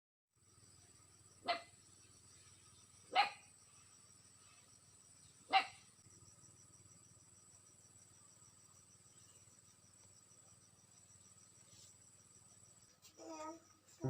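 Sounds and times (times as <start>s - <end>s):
crickets chirring: 0.4s - 14.0s
dog barking: 3.1s - 3.4s, 5.5s - 5.8s.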